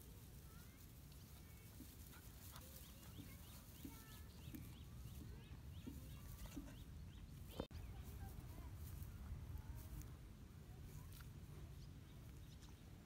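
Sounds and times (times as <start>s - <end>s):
birds chirping: 0.5s - 8.7s, 11.5s - 13.0s.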